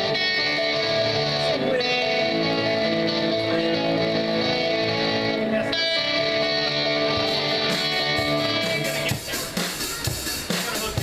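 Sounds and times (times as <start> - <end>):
electric guitar chords: 0.0 - 11.0.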